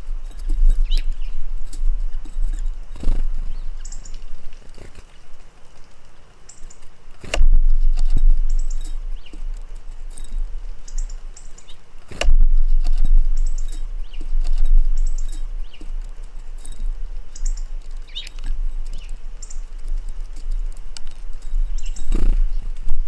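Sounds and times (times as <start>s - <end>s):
small birds chirping: 0.0s - 23.0s
loud low rumble: 7.4s - 9.2s, 12.2s - 15.7s.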